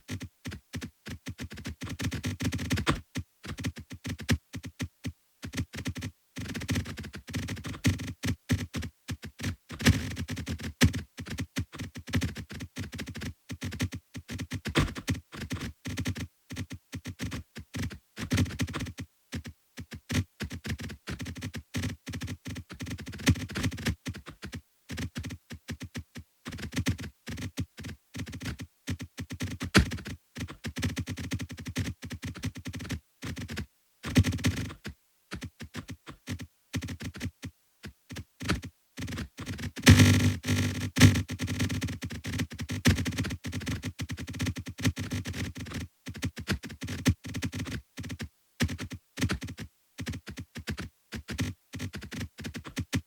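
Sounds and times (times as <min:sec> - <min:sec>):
short clicks and knocks: 0:39.8 - 0:41.7.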